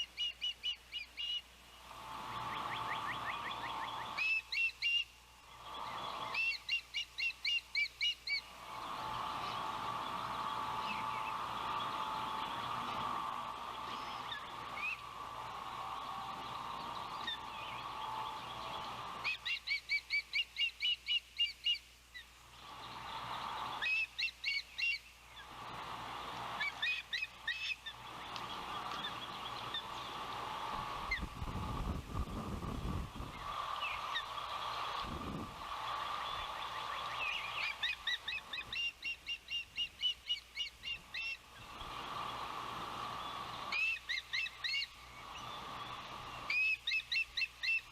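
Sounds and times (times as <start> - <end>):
ospreys chirping: 0.0 - 47.9
steady high hum: 0.0 - 47.9
wind buffeting microphone: 30.4 - 36.7.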